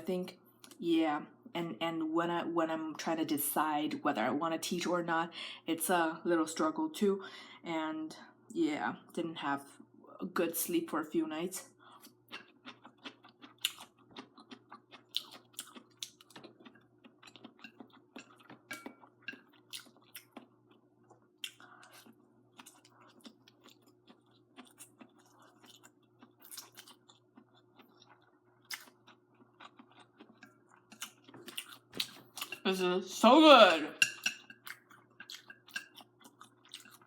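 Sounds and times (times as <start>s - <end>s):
faint steady hum: 0.0s - 37.0s
person chewing noodles: 11.7s - 32.6s, 34.0s - 37.0s.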